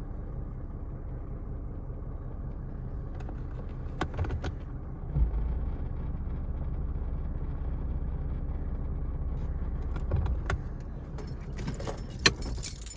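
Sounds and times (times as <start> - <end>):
car engine idling: 0.0 - 12.9
sharp clicks and jingling: 11.1 - 12.9.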